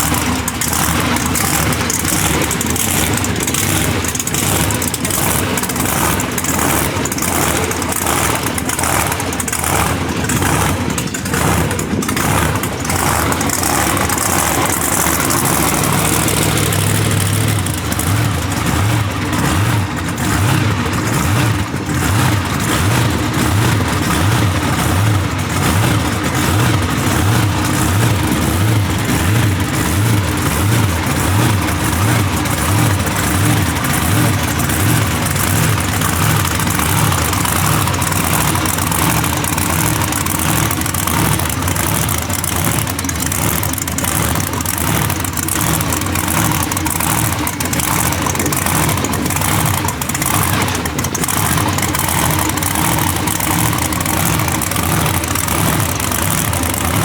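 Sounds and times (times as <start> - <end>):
vehicle engine running steadily: 0.0 - 57.0.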